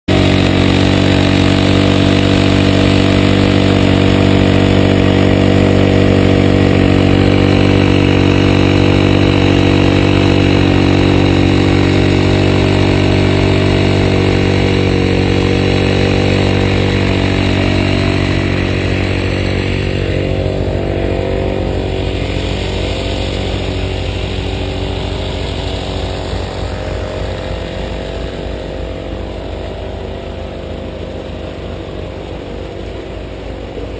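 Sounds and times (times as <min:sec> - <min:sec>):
engine running steadily: 0:00.1 - 0:33.9.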